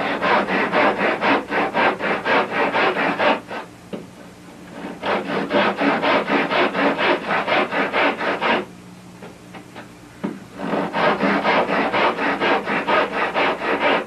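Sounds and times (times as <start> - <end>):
handsaw cutting wood: 0.0 - 3.7, 4.7 - 8.7, 10.5 - 14.0.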